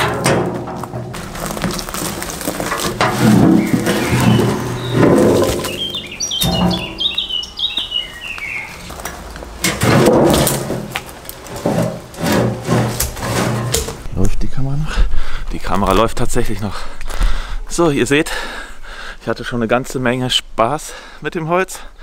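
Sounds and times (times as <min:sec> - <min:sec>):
songbird chirping: 0:03.1 - 0:09.4.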